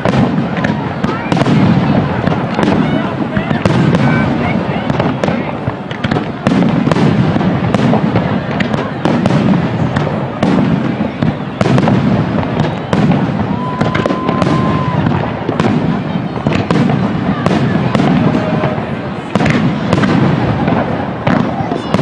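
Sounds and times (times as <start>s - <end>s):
fireworks booming and cracking: 0.0s - 22.0s
steady firework whistle: 9.1s - 21.4s.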